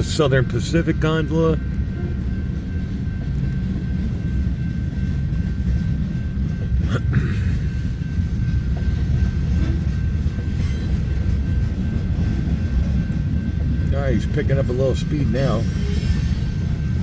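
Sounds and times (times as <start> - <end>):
freight cars rumbling on rails: 0.0 - 17.0.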